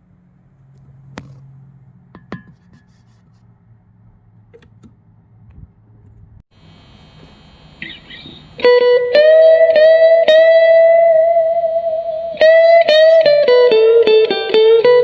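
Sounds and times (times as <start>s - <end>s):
clean electric guitar: 6.6s - 15.0s.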